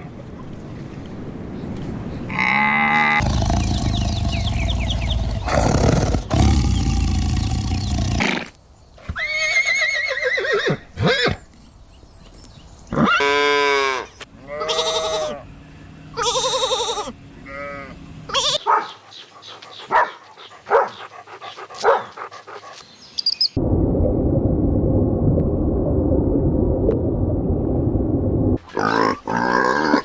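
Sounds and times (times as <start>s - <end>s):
livestock bleating: 14.4s - 15.4s, 16.2s - 18.6s.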